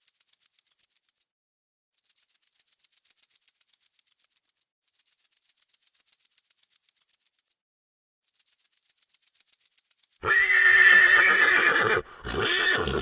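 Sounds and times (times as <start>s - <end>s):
dry shaker rattling: 0.0s - 1.3s, 1.9s - 7.6s, 8.2s - 10.2s.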